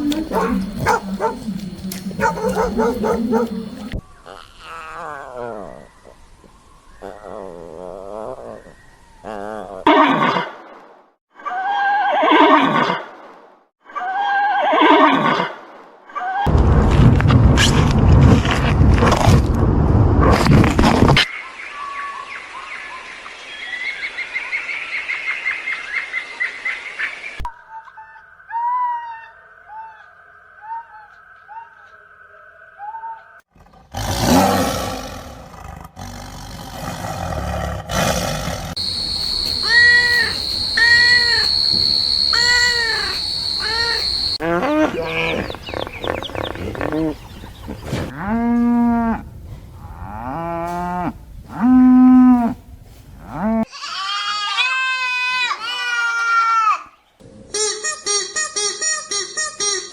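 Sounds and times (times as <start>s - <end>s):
animal calls: 0.0s - 6.1s, 38.8s - 48.4s.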